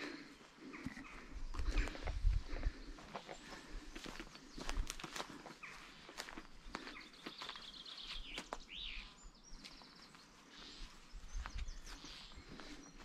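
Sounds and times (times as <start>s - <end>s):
small birds chirping: 0.0s - 13.0s
wind on the microphone: 1.4s - 3.0s.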